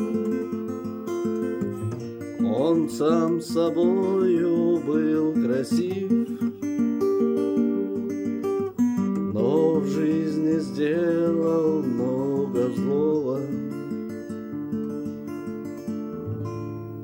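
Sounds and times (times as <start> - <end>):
person singing: 0.0 - 0.8, 1.4 - 14.1
acoustic guitar chords: 0.0 - 17.0.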